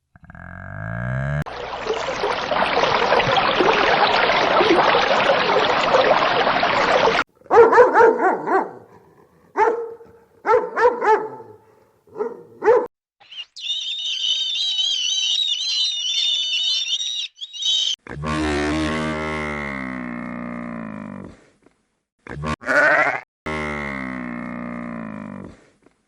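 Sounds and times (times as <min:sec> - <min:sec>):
dog barking: 0:07.4 - 0:12.9.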